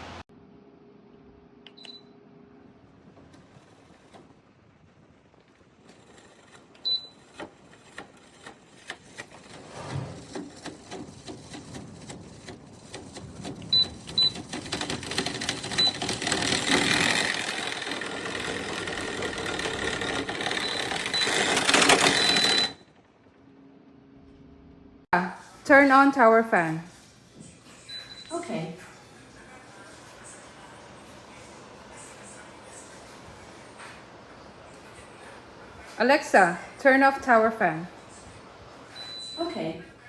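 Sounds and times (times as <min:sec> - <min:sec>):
tower fan with clicking rattle: 0:02.7 - 0:22.8.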